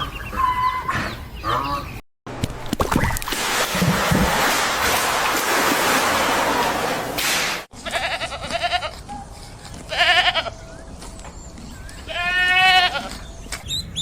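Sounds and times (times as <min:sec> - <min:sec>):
animal bleating: 0:07.8 - 0:09.0, 0:09.9 - 0:10.6, 0:12.1 - 0:13.2.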